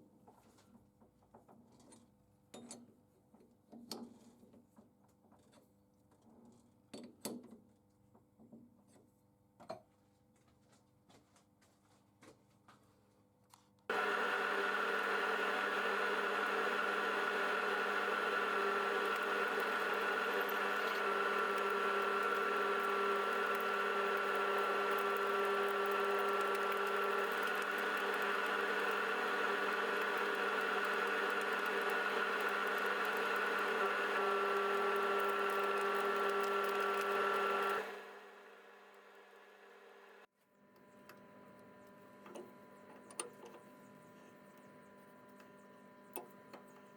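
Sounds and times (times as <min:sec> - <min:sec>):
electric workshop machine running: 0:13.9 - 0:46.9.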